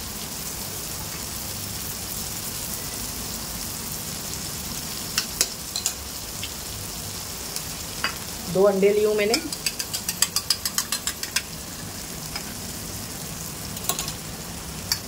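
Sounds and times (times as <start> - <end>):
egg sizzling in oil: 0.0 - 15.0.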